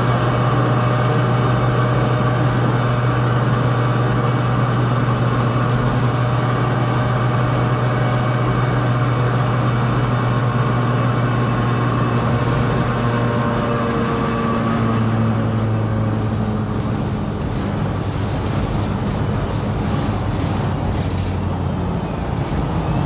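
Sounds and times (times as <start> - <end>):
bus engine drone: 0.0 - 23.0.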